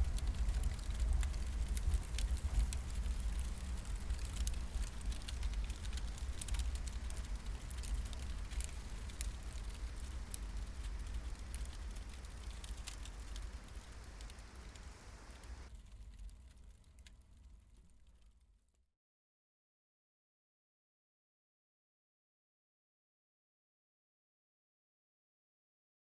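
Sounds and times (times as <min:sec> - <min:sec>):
sharp fire pops: 0:00.0 - 0:16.7
low steady rumble: 0:00.0 - 0:18.3
campfire crackling: 0:00.0 - 0:18.5.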